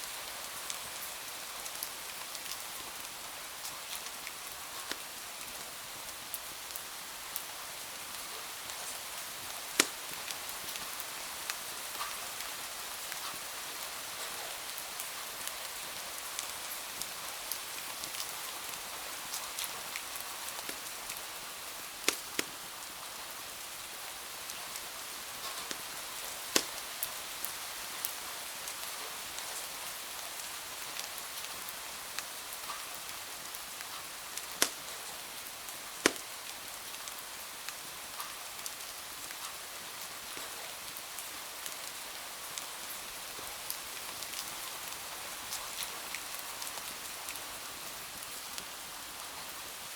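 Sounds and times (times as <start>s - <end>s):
wood fire crackling and popping: 9.6s - 10.8s, 20.5s - 21.2s, 21.9s - 22.7s, 24.5s - 27.2s, 33.8s - 35.3s, 35.9s - 36.5s
rain on window glass: 24.5s - 28.0s, 32.2s - 37.0s.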